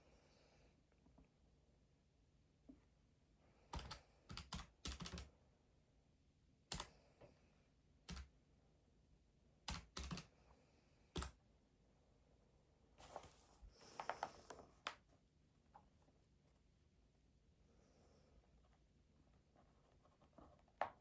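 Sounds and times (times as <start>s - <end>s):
keyboard key presses: 3.8s - 5.3s, 6.7s - 6.9s, 9.7s - 10.3s, 11.2s - 11.4s.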